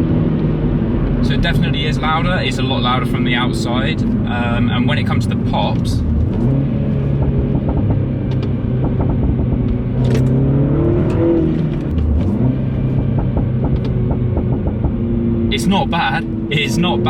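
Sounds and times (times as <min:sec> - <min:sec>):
car engine running: 0:00.0 - 0:17.0
exhaust pops: 0:04.9 - 0:16.3.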